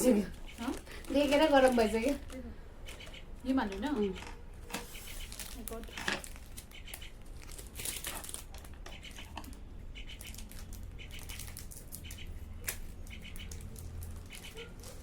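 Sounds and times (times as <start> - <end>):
plastic packaging crinkling: 0.6 - 2.4, 4.8 - 9.6, 10.2 - 15.0.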